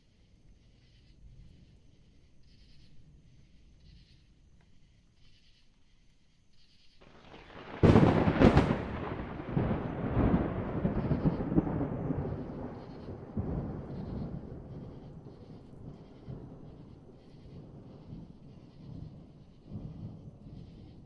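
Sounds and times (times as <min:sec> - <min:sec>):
lightning cracks: 0:07.0 - 0:21.0
rolling thunder: 0:07.0 - 0:21.0.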